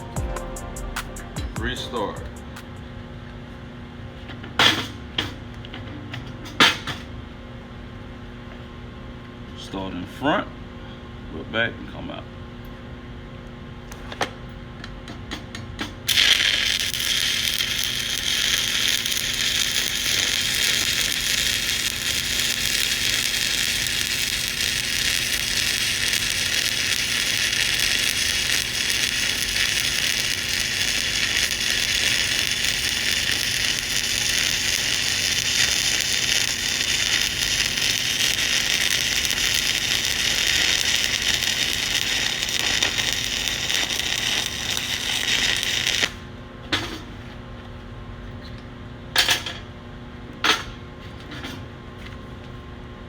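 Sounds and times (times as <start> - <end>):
welding arc crackling sizzle: 16.0 - 46.3.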